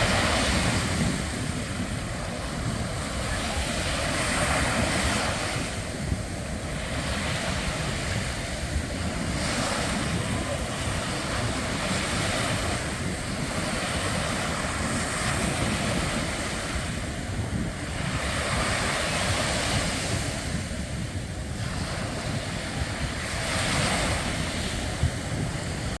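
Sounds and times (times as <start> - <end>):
ocean surf washing on beach: 0.0 - 26.0
wind on microphone: 0.0 - 26.0.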